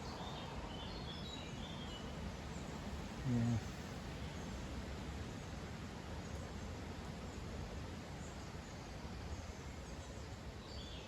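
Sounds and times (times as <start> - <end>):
songbirds chirping: 0.0 - 4.6, 8.1 - 11.0.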